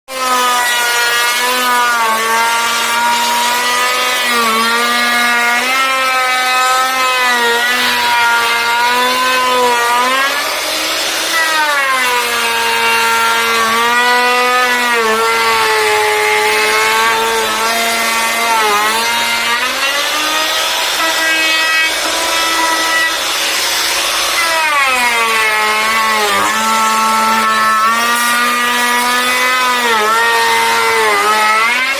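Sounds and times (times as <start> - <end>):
power tool cutting wood: 0.1 - 31.9.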